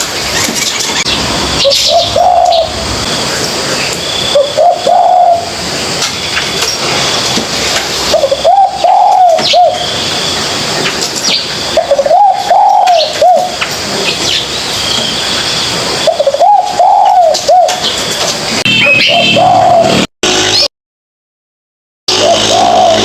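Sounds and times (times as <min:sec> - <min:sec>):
small birds chirping: 0:00.2 - 0:20.7
dove cooing: 0:00.3 - 0:05.6, 0:08.0 - 0:09.9, 0:11.7 - 0:13.6, 0:16.0 - 0:18.0, 0:18.9 - 0:20.6, 0:22.1 - 0:23.0.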